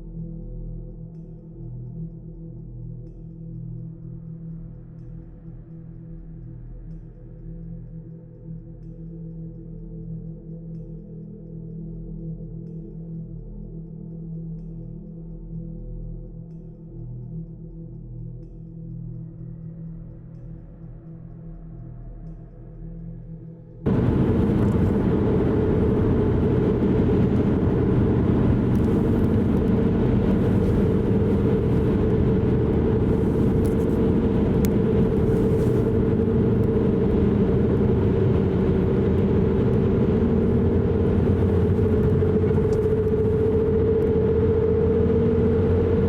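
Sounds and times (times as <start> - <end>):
car engine drone: 23.8 - 46.0
road noise: 23.9 - 46.0.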